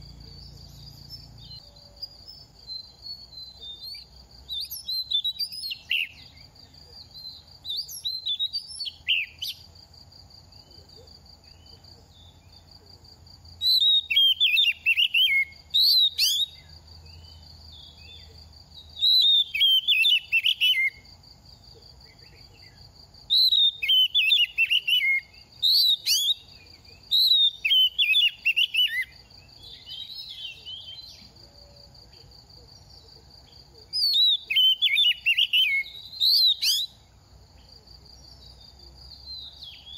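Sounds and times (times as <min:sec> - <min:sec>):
bird singing whistled phrases: 0:00.0 - 0:06.4, 0:07.0 - 0:09.6, 0:13.6 - 0:16.7, 0:19.0 - 0:21.0, 0:23.3 - 0:31.2, 0:34.0 - 0:37.0.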